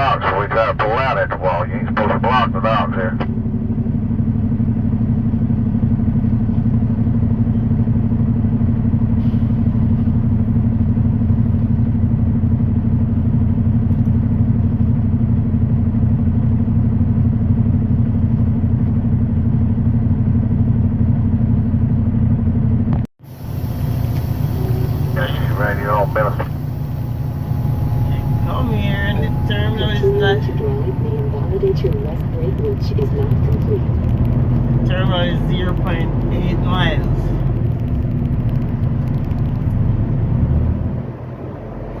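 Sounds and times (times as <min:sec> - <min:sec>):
truck diesel engine running: 0:00.0 - 0:42.0.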